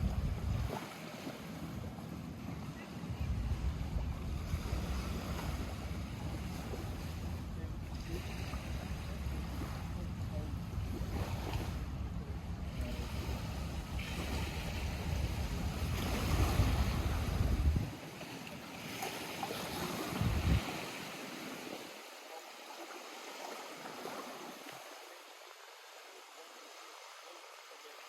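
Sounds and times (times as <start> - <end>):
wind rumbling on microphone: 0.0 - 1.1, 1.8 - 18.0, 19.7 - 21.0
lake water lapping: 0.0 - 28.0.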